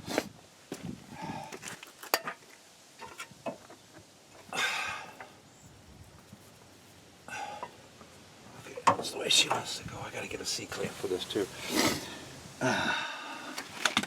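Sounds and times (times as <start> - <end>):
short hiss: 11.6 - 12.2.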